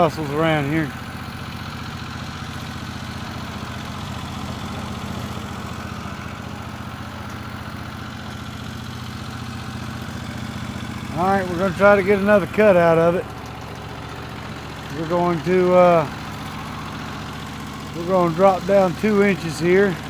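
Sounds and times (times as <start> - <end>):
gas engine idling: 0.0 - 20.0.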